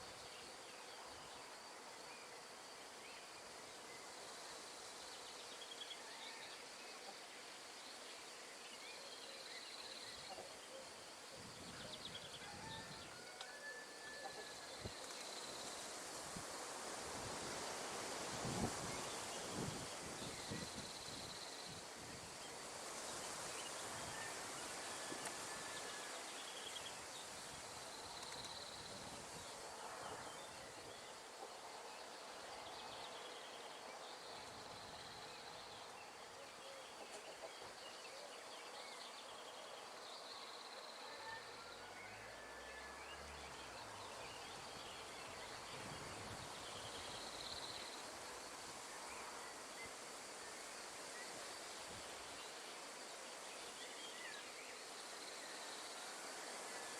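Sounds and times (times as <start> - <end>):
wind through trees: 0.0 - 56.9.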